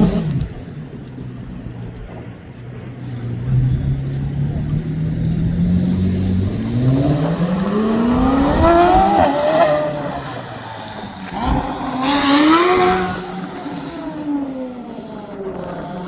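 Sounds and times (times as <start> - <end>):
engine revving: 3.2 - 16.0.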